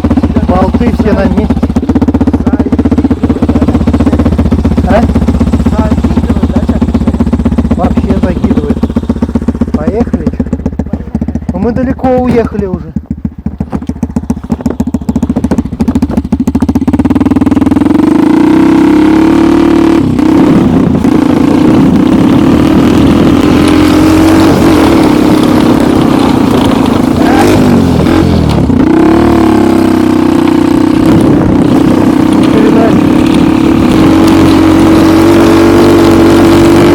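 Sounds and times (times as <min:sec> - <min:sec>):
snowmobile engine revving: 0:00.0 - 0:09.0, 0:16.8 - 0:36.9.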